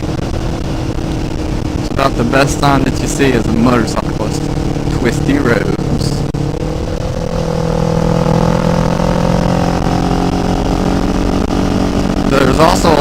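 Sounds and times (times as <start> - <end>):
motorcycle engine pulling steadily: 0.0 - 13.0.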